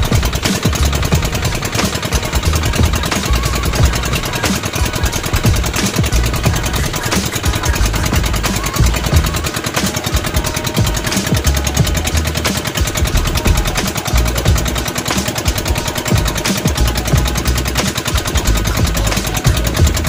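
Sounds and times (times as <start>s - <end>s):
boat engine chugging: 0.0s - 20.0s.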